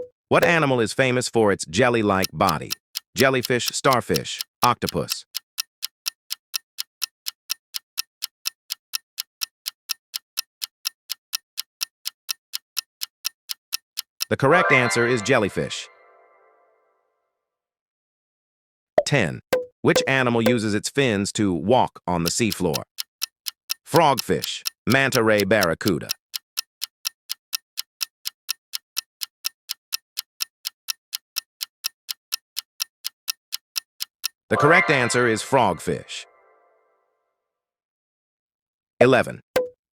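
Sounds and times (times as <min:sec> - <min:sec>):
clock ticking: 0:00.0 - 0:00.6, 0:02.1 - 0:16.2, 0:19.6 - 0:20.6, 0:22.2 - 0:36.4.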